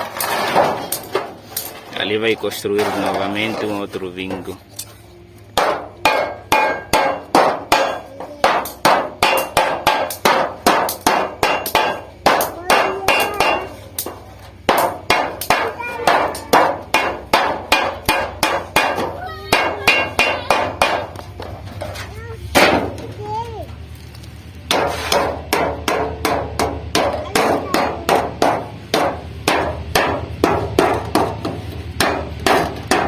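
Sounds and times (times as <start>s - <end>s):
hammer striking sheet steel: 5.6s - 23.1s, 24.7s - 33.0s.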